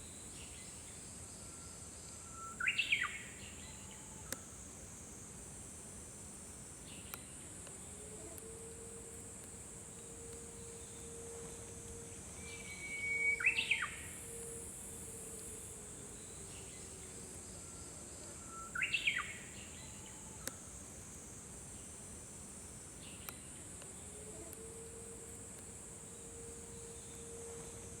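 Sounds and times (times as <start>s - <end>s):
bush warbler singing: 12.5s - 14.2s.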